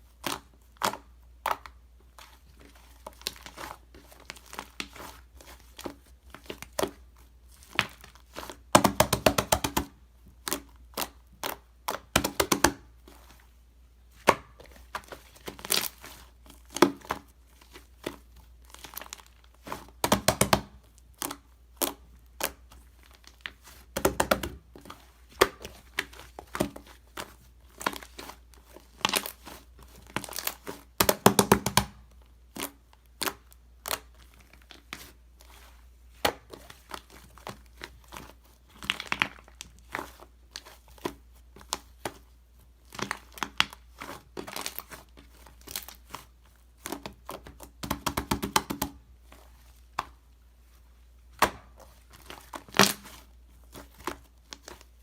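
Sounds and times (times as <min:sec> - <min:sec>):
packaging crinkling and tearing: 0:24.8 - 0:30.8, 0:42.9 - 0:46.3.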